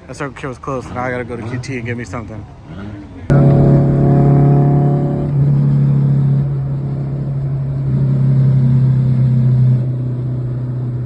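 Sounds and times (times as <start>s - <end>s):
car engine at high revs: 3.3s - 11.0s.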